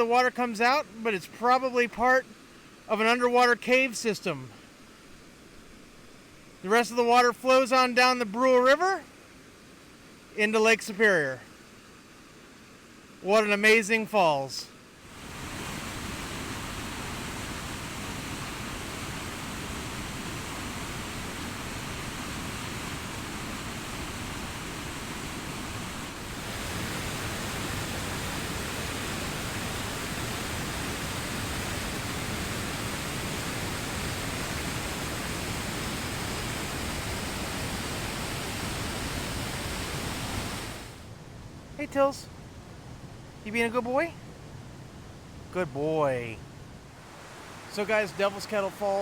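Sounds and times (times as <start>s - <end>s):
waterfall rushing: 13.2s - 41.1s, 47.0s - 49.0s.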